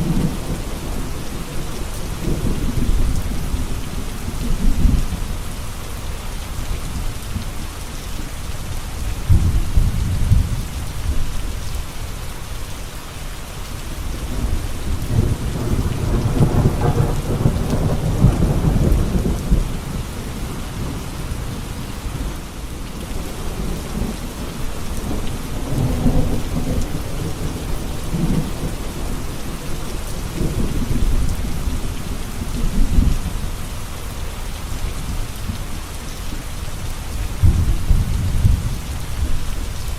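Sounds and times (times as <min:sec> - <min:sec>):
steady rain falling: 0:00.0 - 0:39.9
thunder rumbling: 0:09.2 - 0:11.4, 0:14.2 - 0:33.5, 0:37.4 - 0:39.9.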